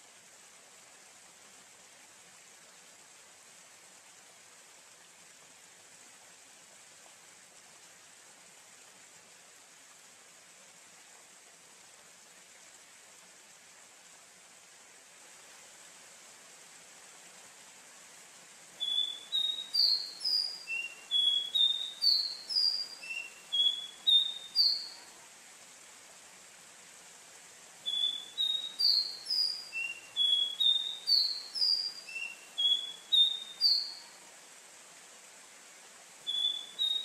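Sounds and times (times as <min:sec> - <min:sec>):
faint steady hiss: 0:00.0 - 0:37.0
bird singing whistled notes: 0:18.8 - 0:25.1, 0:27.8 - 0:34.2, 0:36.3 - 0:37.0.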